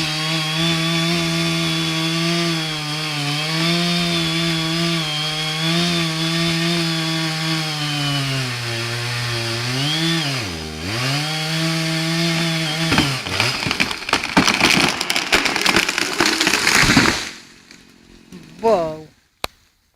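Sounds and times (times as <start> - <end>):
chainsaw running: 0.0 - 18.8
tree cracking and crashing down: 11.8 - 18.7.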